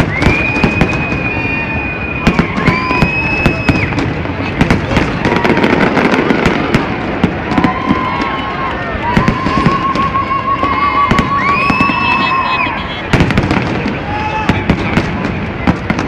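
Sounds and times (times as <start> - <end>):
fireworks bursting and crackling: 0.0 - 16.0.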